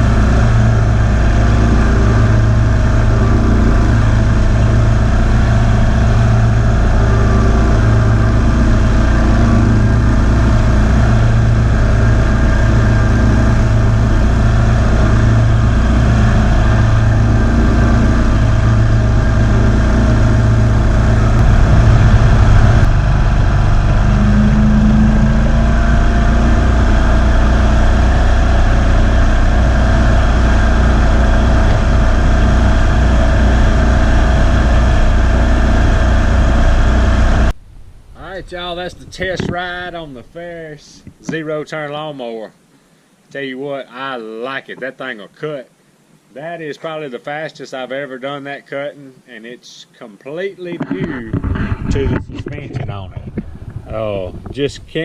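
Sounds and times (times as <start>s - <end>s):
mower engine running: 0.0s - 37.6s.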